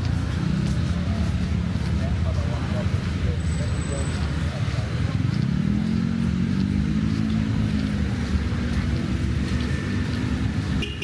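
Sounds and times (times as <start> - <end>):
vehicle engine passing: 0.0 - 10.8
traffic rumble: 0.0 - 11.0.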